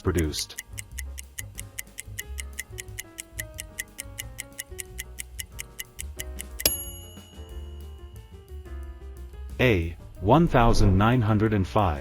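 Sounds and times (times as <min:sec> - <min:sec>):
countdown timer ticking: 0:00.0 - 0:07.9
bright chime: 0:06.6 - 0:08.1.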